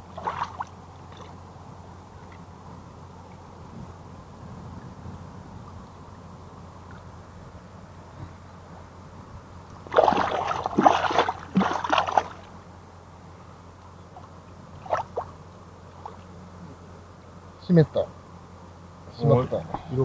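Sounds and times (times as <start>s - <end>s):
water splashing and sloshing: 0.0s - 1.4s, 9.8s - 12.6s, 14.2s - 16.3s.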